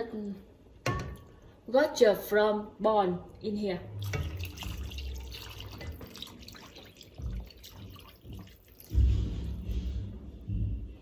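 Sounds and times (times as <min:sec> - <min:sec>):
liquid splashing and dripping: 0:04.0 - 0:09.4
dull low thumps: 0:08.9 - 0:11.0.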